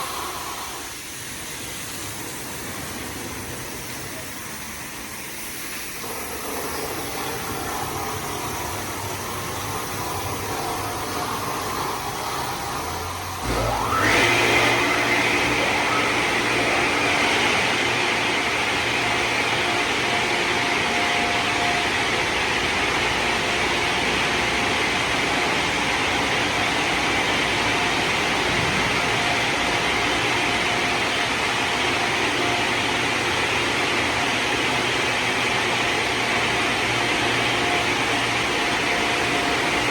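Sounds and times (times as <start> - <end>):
car wash spray hiss: 0.0 - 18.6
motor whine: 6.0 - 24.0.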